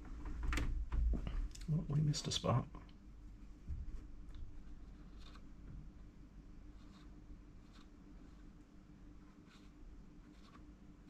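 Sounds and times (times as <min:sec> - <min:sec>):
steady low hum: 0:00.0 - 0:11.0
spreader scratching on chip: 0:04.8 - 0:05.5, 0:06.7 - 0:08.6, 0:09.2 - 0:10.7.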